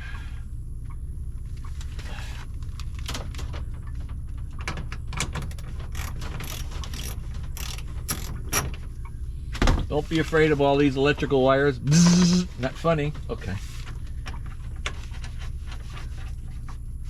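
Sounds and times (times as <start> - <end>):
tools and metal parts clinking: 5.4 - 8.8.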